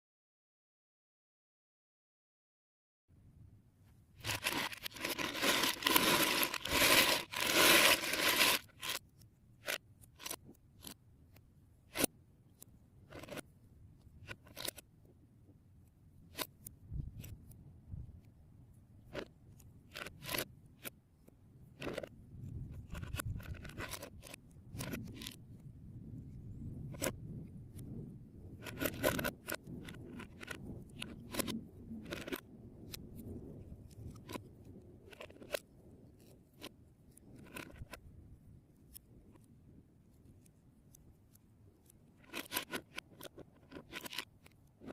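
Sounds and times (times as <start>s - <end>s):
plastic pieces rattling and scraping: 4.2s - 9.0s, 9.6s - 11.0s, 19.9s - 20.9s, 21.8s - 22.1s, 22.7s - 25.4s, 28.6s - 32.4s, 35.1s - 35.6s, 42.2s - 44.9s
plastic bricks clicking and snapping: 28.6s - 33.3s, 42.2s - 44.9s.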